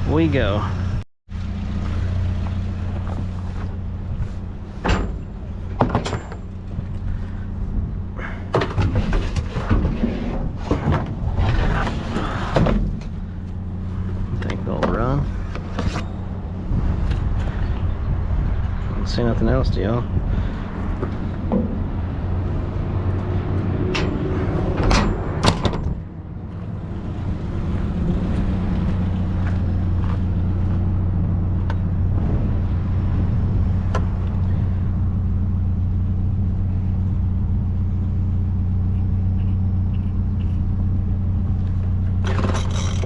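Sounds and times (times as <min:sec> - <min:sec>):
truck engine running: 0:00.0 - 0:43.0
truck door shutting: 0:23.8 - 0:26.1.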